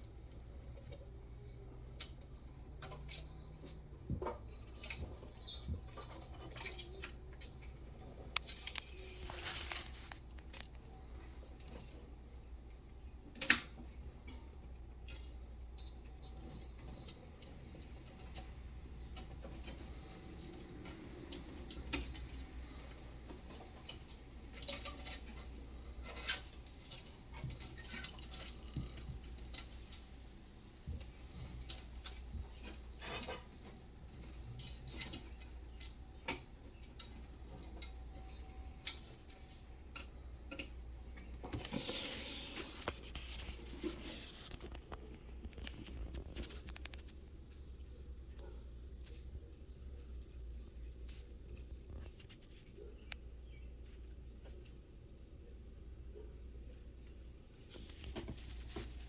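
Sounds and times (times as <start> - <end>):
rustling: 4.4 - 12.1, 41.1 - 54.8.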